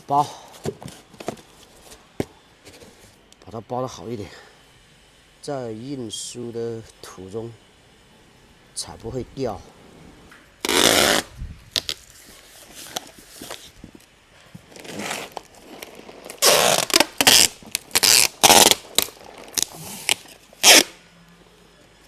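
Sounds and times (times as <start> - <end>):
packing tape pulled off roll: 10.6 - 21.0.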